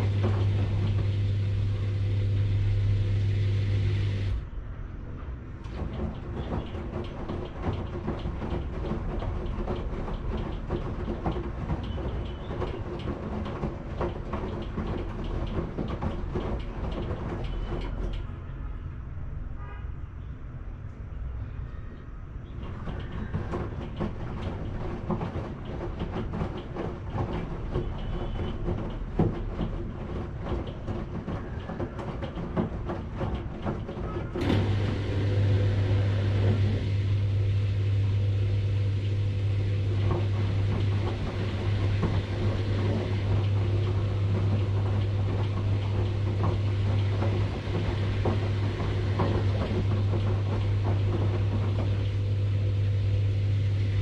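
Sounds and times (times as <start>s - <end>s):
washing machine drum knocking: 0.0s - 4.4s, 5.6s - 18.3s, 22.5s - 54.0s
low electric hum: 0.0s - 5.1s, 34.3s - 54.0s.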